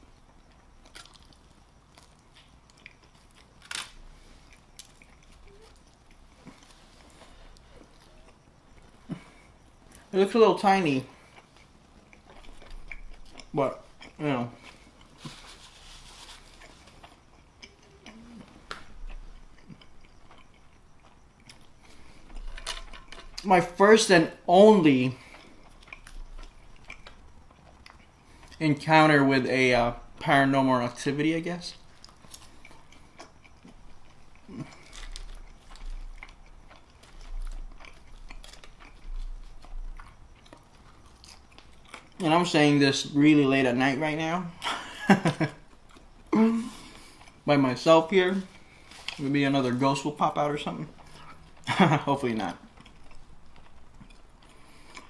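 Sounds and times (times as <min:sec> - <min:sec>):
close chewing mouth sounds: 0:00.2 - 0:10.1, 0:11.0 - 0:23.5, 0:25.1 - 0:28.6, 0:31.7 - 0:42.3, 0:45.7 - 0:47.5, 0:50.2 - 0:55.0.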